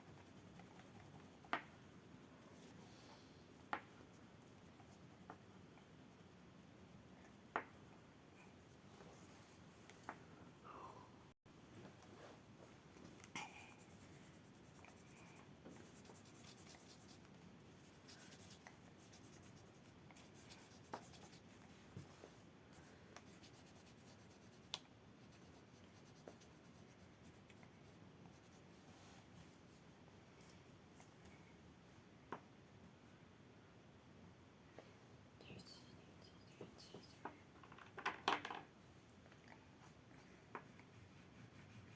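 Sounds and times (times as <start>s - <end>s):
pastel scratching on paper: 0.0s - 2.8s, 13.6s - 22.2s, 22.8s - 29.6s, 40.6s - 41.9s.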